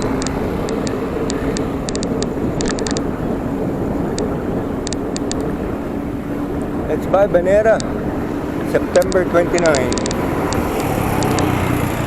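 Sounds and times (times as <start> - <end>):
light ticks: 0.0 - 3.1, 4.1 - 5.5, 8.9 - 11.5
faint traffic hum: 0.0 - 12.0
wind and road noise: 0.0 - 12.0.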